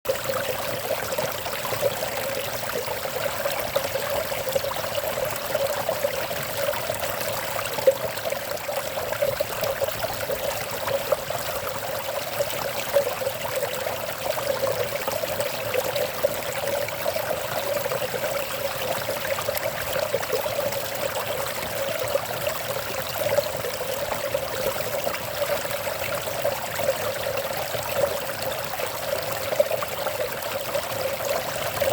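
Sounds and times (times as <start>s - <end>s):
water trickling and burbling: 0.1s - 31.9s.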